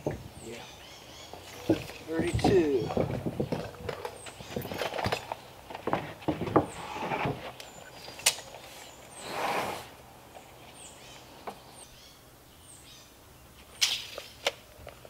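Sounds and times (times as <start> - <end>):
wood knocking and scraping on wood: 0.0 - 0.6, 1.3 - 8.4.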